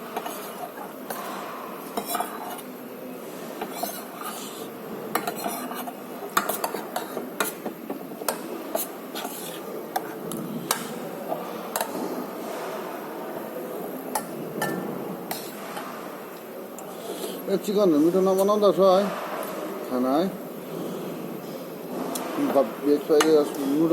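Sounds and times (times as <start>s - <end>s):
cutlery clinking on a plate: 0.1s - 2.6s, 5.2s - 12.1s, 14.1s - 15.8s.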